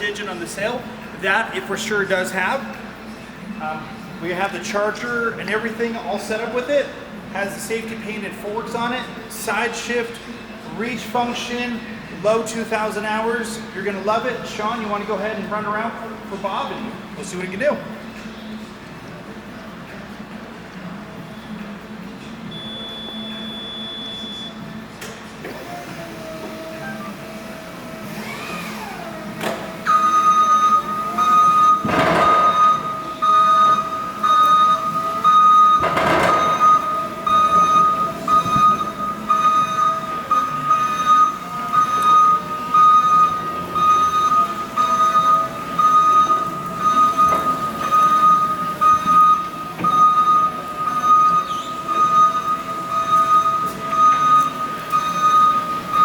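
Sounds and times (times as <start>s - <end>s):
high-pitched warning alarm beeps: 29.8s - 56.0s.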